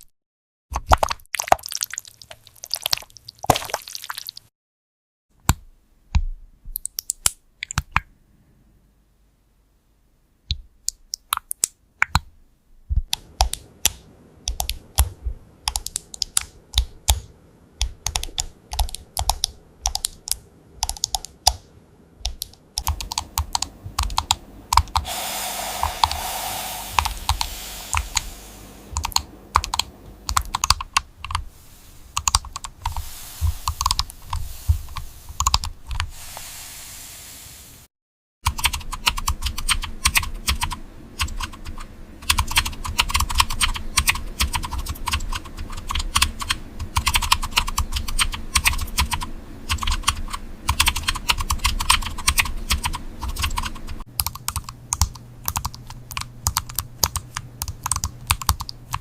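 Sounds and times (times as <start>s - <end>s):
typing on keyboard: 13.1s - 21.6s, 22.3s - 25.0s, 29.0s - 31.4s, 38.5s - 59.0s
steady hiss: 23.0s - 37.9s.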